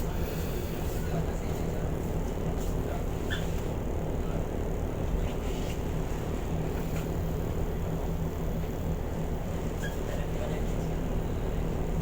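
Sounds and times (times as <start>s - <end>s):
ferry engines droning: 0.0s - 12.0s.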